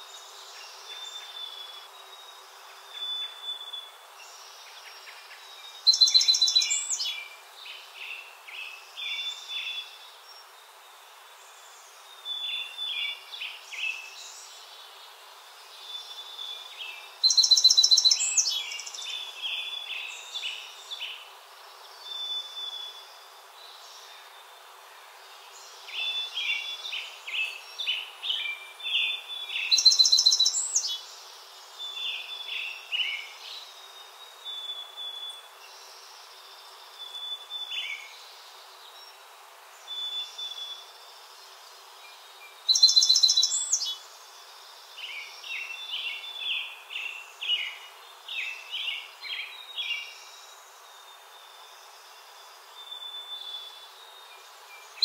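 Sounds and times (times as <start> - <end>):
faint background hiss: 0.0 - 55.0
songbird trilling phrase: 42.7 - 44.0.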